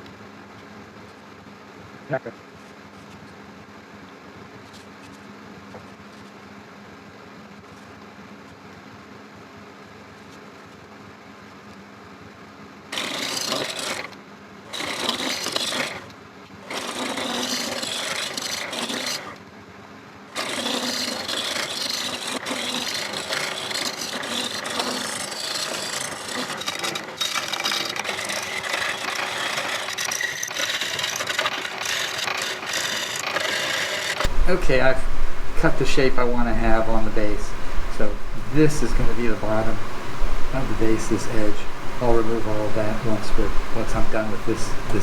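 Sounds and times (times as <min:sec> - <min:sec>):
turning tool scraping wood: 0:12.9 - 0:19.4, 0:20.3 - 0:45.0
lathe humming: 0:13.0 - 0:14.1, 0:14.7 - 0:16.1, 0:16.7 - 0:19.4, 0:20.4 - 0:45.0.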